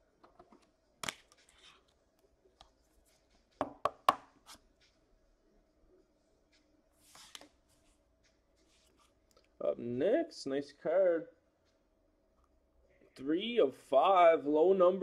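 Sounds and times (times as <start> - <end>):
faint steady hum: 0.0 - 15.0
soft swish of cards: 7.0 - 8.0.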